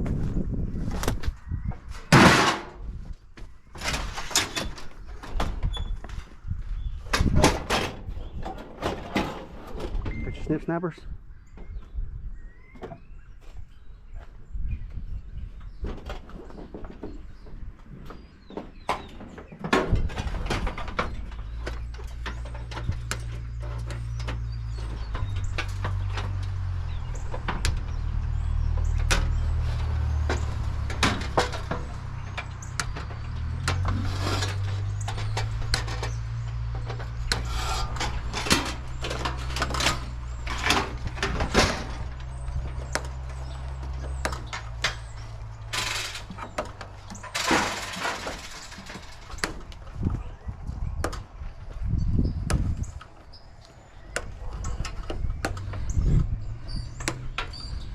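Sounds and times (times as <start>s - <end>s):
metal knocks and clanks: 1.9s - 3.0s, 15.8s - 50.2s.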